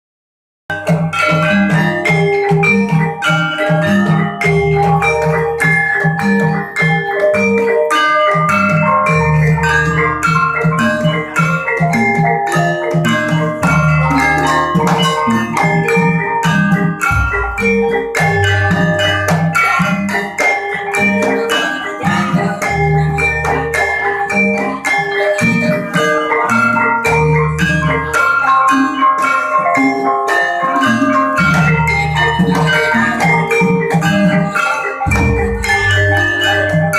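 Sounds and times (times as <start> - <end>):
metallophones ringing: 0.7 - 36.9
drum: 12.9 - 20.4, 35.0 - 36.8
sustained low tones: 17.1 - 18.1.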